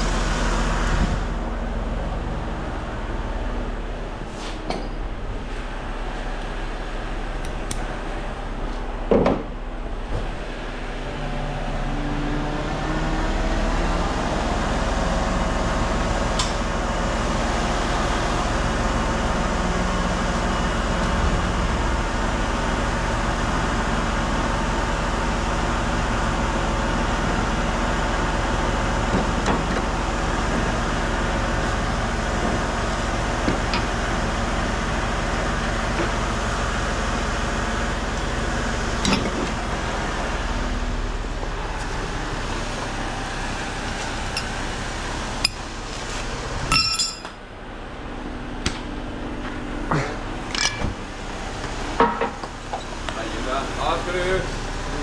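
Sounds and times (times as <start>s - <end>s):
heavy truck engine running: 0.0s - 55.0s.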